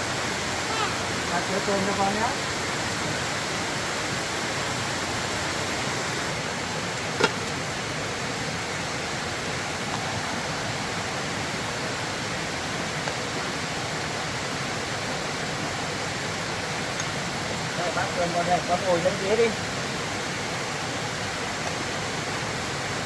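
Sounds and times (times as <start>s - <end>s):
rushing water: 0.0s - 23.0s.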